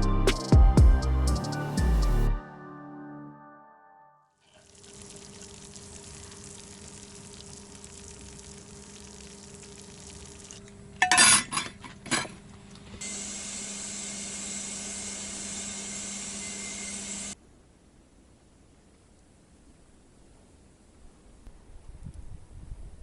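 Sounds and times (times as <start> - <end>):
food sizzling in a pan: 4.6 - 10.6
pot and utensils clattering: 11.0 - 12.4.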